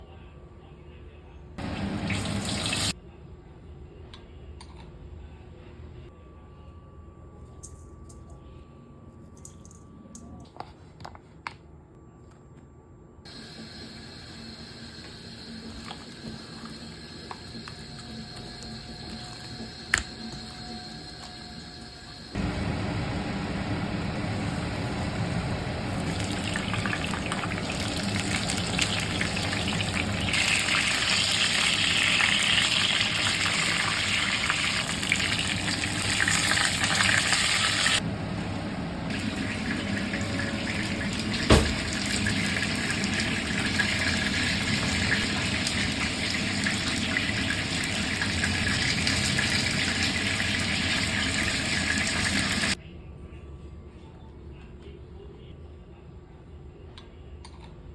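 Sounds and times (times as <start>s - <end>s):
chicken deep-frying in oil: 1.6s - 3.0s, 13.3s - 52.8s.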